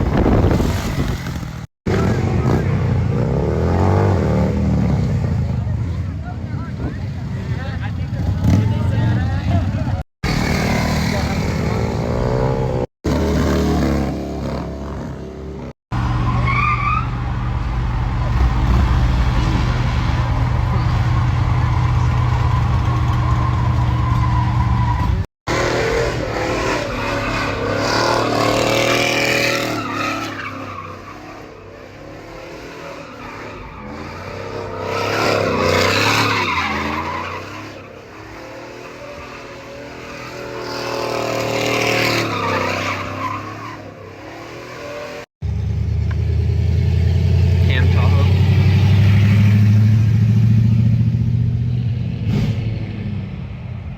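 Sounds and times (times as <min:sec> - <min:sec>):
tires squealing on pavement: 0:16.0 - 0:45.2.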